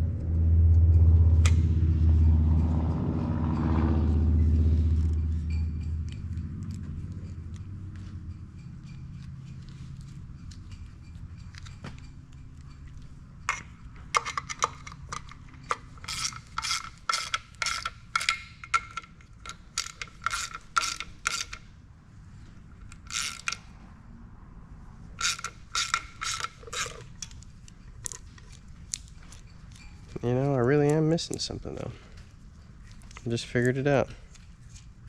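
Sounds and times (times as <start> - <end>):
ratchet wrench clicking: 13.5 - 21.7, 22.8 - 23.7, 25.2 - 29.9.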